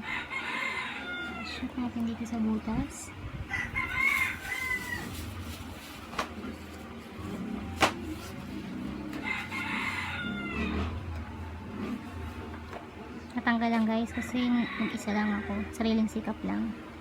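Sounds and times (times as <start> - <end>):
rooster crowing: 0.0 - 1.6, 3.5 - 5.4, 9.1 - 11.0, 14.0 - 16.0.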